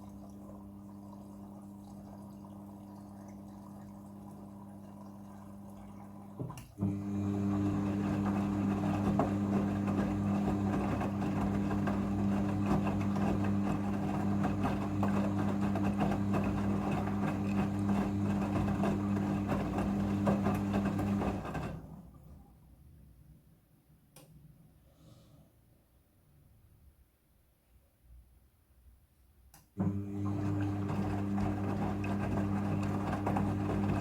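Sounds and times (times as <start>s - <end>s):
washing machine humming: 0.0s - 22.6s, 29.8s - 34.0s.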